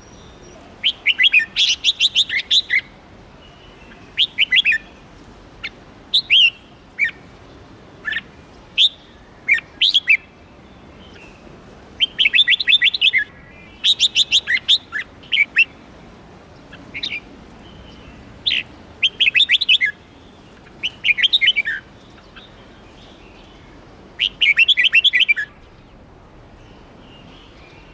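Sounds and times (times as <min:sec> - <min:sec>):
bird singing quick chirps: 0:06.2 - 0:07.2, 0:12.0 - 0:15.8, 0:16.9 - 0:25.9.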